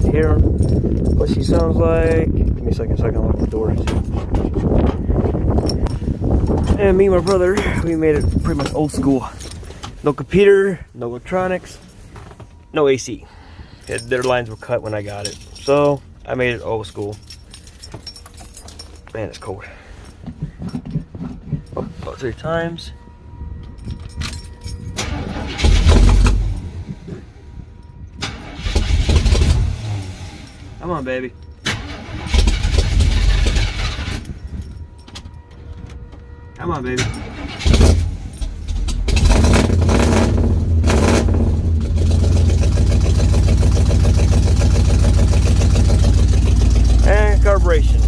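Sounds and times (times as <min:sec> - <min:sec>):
keys jingling: 0:00.0 - 0:10.8, 0:11.4 - 0:27.0, 0:31.3 - 0:36.4
engine firing up: 0:25.0 - 0:26.9, 0:28.2 - 0:30.8, 0:31.6 - 0:34.3, 0:37.0 - 0:48.0.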